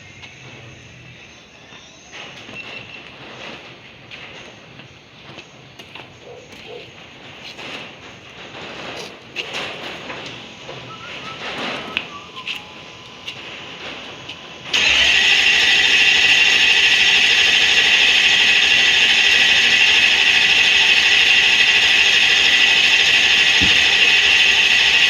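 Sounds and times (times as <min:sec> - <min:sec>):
starter motor cranking engine: 0:09.4 - 0:25.0.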